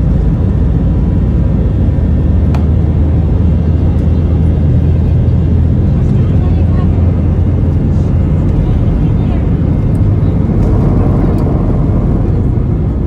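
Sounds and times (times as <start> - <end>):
jet engine rumble in cabin: 0.0 - 13.0
rushing air: 9.8 - 13.0.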